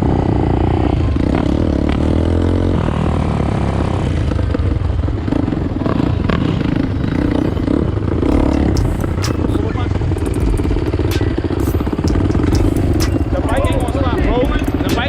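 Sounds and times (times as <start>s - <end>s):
dirt bike engine revving: 0.0s - 15.0s
sharp clicks: 8.2s - 9.6s, 10.2s - 15.0s.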